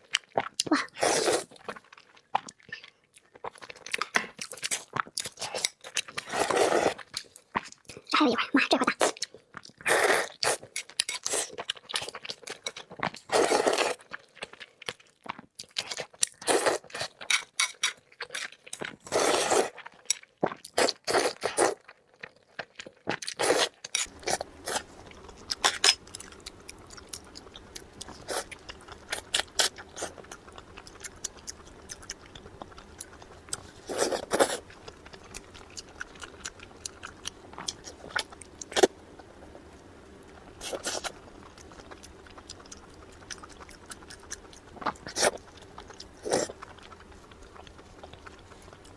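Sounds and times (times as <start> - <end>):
person chewing crunchy food: 0.0 - 8.1, 9.0 - 48.9
low steady hum: 24.0 - 48.9.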